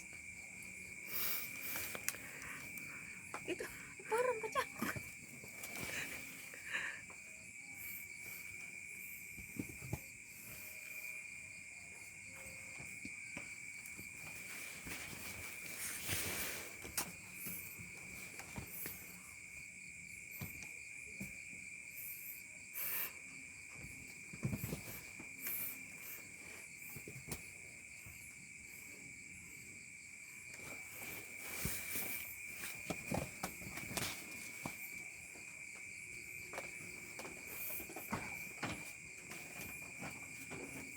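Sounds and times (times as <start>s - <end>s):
rustles: 0.0s - 6.8s, 12.0s - 19.5s, 22.8s - 29.7s, 30.3s - 40.9s
crickets chirring: 0.0s - 40.9s.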